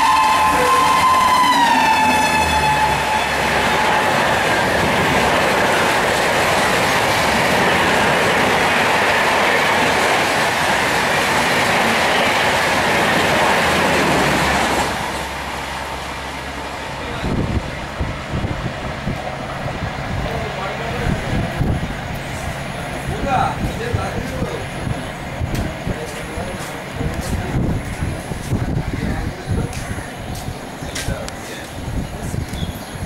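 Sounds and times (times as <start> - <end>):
train horn: 0.0 - 4.3
train rushing past: 0.0 - 32.5.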